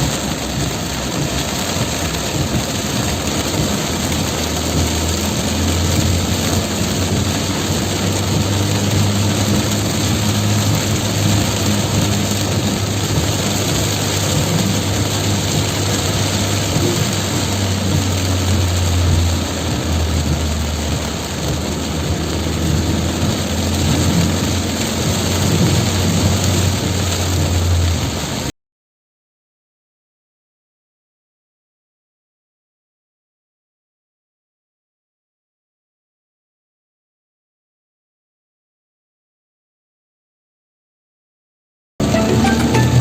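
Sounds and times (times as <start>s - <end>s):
heavy rain falling: 0.0s - 28.5s, 42.0s - 43.0s
vehicle engine low hum: 0.0s - 28.5s.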